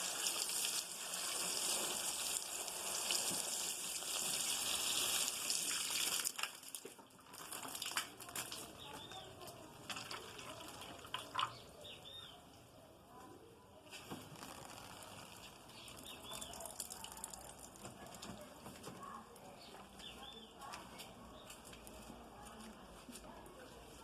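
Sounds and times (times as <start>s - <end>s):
water splashing and trickling: 0.0s - 12.0s, 14.0s - 18.9s
small bird chirping: 11.3s - 12.6s, 14.8s - 17.2s.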